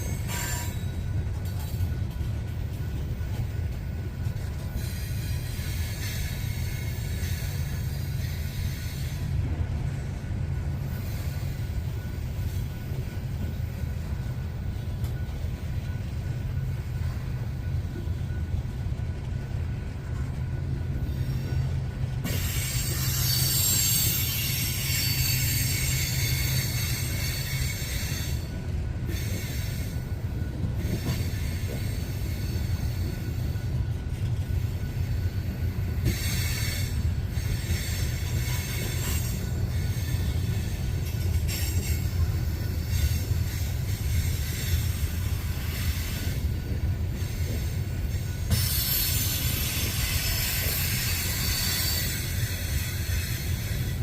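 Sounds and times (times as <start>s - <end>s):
wheels rumbling on rail: 0.0s - 54.0s
high-pitched wheel squeal: 21.2s - 28.5s.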